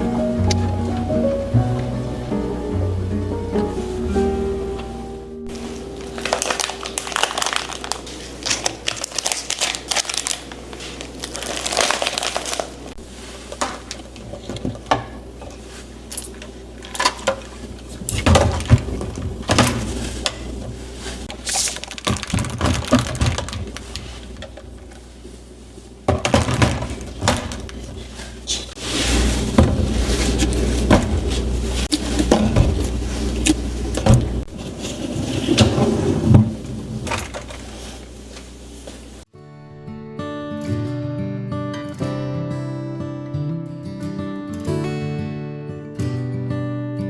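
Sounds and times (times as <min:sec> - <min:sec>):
packaging crinkling: 0:05.5 - 0:14.1, 0:15.7 - 0:25.3, 0:26.2 - 0:35.8.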